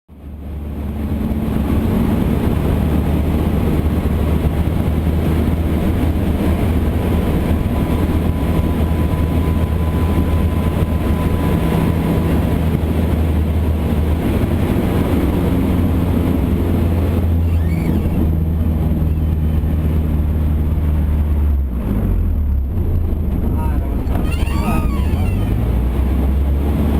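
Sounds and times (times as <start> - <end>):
propeller plane engine droning: 0.1 - 26.9.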